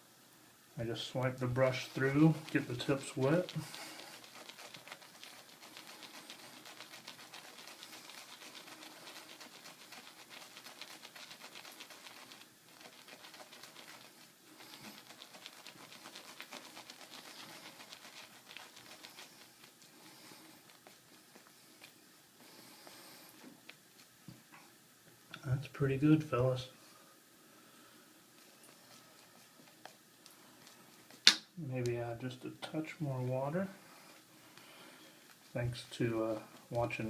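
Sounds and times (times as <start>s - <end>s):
shaving brush lathering soap: 0.8s - 24.2s, 28.3s - 31.2s.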